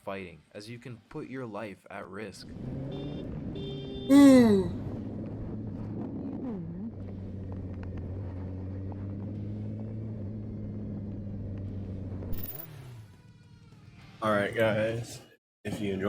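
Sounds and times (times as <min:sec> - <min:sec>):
vehicle engine humming: 0:04.3 - 0:12.9.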